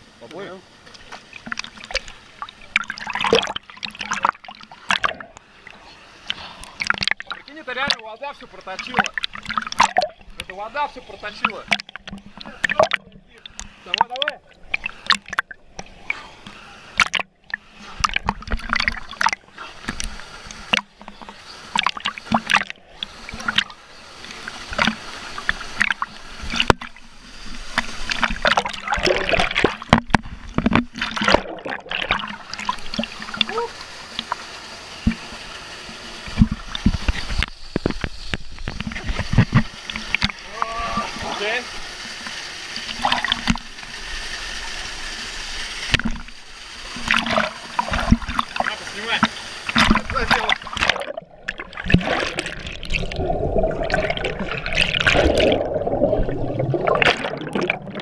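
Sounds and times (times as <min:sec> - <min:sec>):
rush of moving water: 0:00.0 - 0:58.0
water splashing from swimming: 0:00.8 - 0:58.0
waterfall rushing: 0:40.4 - 0:41.8.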